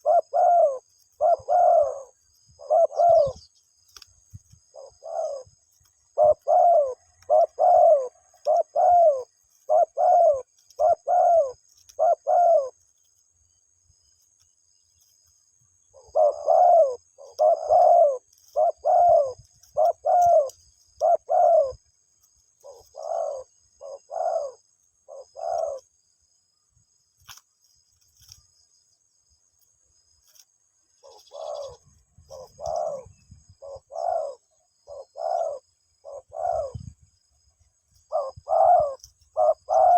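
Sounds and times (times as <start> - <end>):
dove cooing: 0.0 - 3.5, 4.4 - 12.8, 15.9 - 25.9, 31.0 - 37.0, 38.0 - 39.9.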